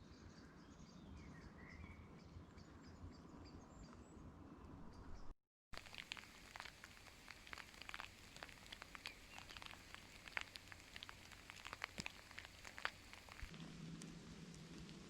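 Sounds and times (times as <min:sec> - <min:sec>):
raindrops ticking: 0:05.8 - 0:13.6
faint steady hiss: 0:05.8 - 0:15.0.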